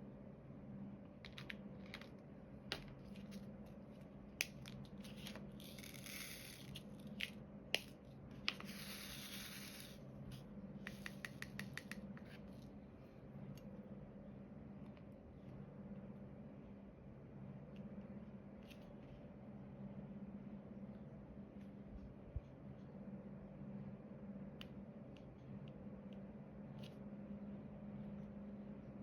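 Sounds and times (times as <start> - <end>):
small clicks and taps: 10.9 - 12.3.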